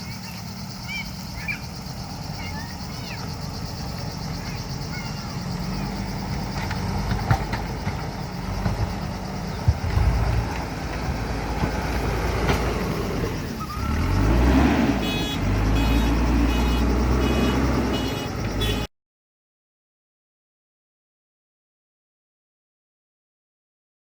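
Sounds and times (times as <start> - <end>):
diesel engine running and revving: 0.0 - 18.9
reversing alarm beeping: 13.3 - 18.9.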